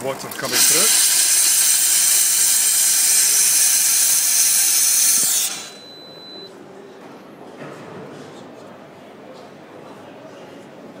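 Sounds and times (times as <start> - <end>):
coffee machine hissing steam: 0.4 - 5.9.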